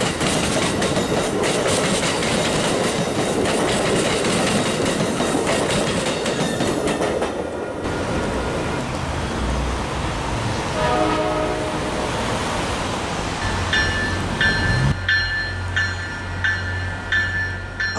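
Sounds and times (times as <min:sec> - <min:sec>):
train wheels clicking over rail joints: 0:00.0 - 0:07.5
low train rumble: 0:00.0 - 0:17.9
train horn blast: 0:10.7 - 0:12.3.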